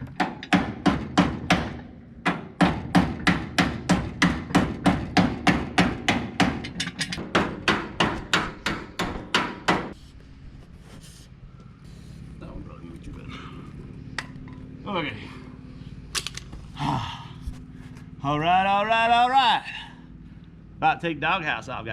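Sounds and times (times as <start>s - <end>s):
hammer blows: 0.1s - 10.0s.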